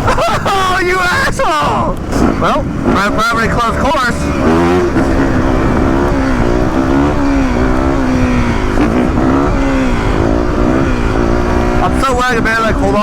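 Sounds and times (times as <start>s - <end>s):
motorcycle engine running: 0.0s - 13.0s
road rumble: 0.0s - 13.0s
wind noise: 0.0s - 13.0s.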